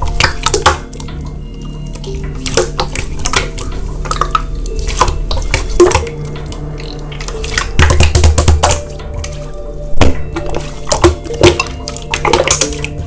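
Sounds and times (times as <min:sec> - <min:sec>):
slime squishing wet pops: 0:00.0 - 0:01.1, 0:07.2 - 0:09.4, 0:10.0 - 0:13.0
soft background music: 0:00.0 - 0:13.0.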